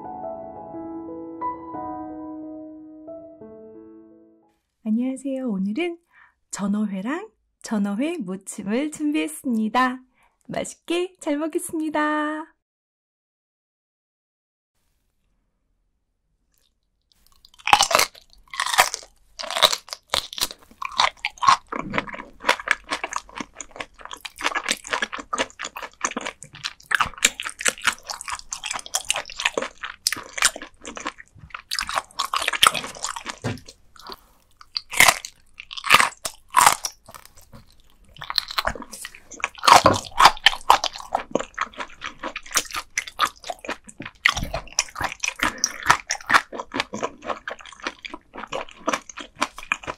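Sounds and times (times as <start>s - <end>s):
crunching and chewing fish bones: 16.5s - 49.9s.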